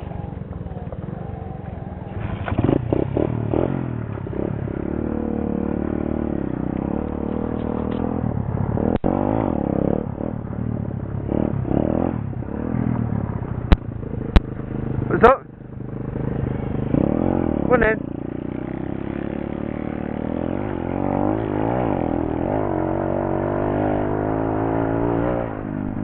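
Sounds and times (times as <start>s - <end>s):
small motorcycle engine revving: 2.0s - 10.4s, 15.8s - 26.0s.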